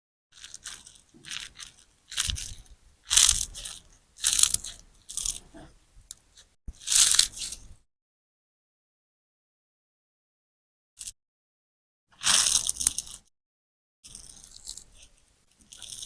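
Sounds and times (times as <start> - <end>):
slime-soaked sponge squishing: 0.4 - 5.8.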